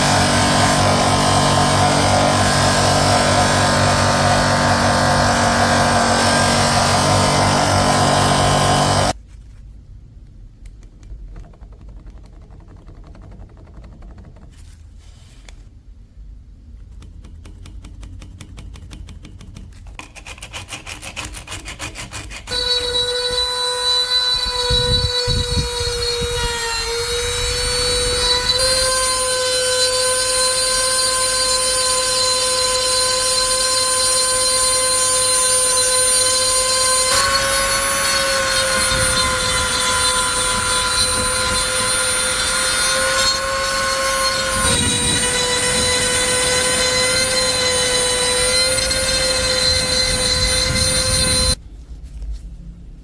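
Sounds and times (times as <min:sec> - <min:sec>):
power tool high whine: 0:00.0 - 0:09.2, 0:22.5 - 0:51.6.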